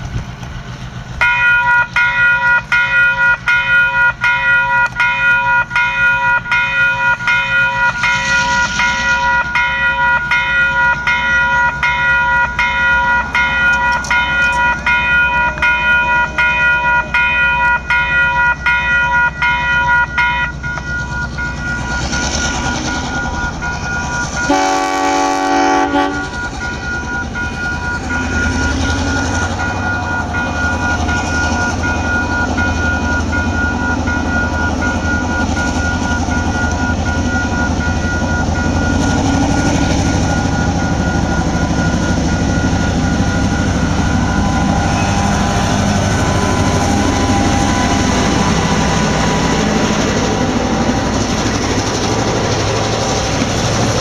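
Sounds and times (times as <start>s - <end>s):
locomotive rumbling: 0.0s - 54.0s
level crossing warning bells: 1.1s - 54.0s
locomotive horn blast: 24.4s - 26.4s.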